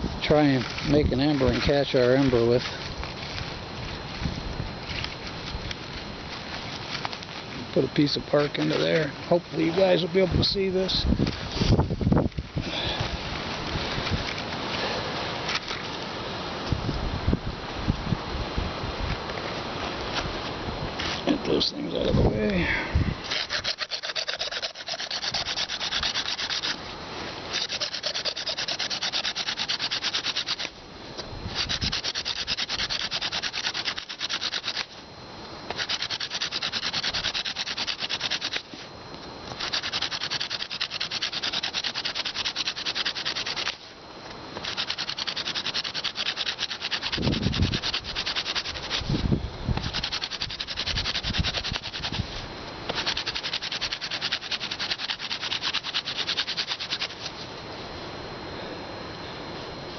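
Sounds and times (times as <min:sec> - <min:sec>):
wooden spindle rubbing in fireboard: 0:23.2 - 0:30.8, 0:31.4 - 0:35.0, 0:35.7 - 0:43.9, 0:44.6 - 0:57.4.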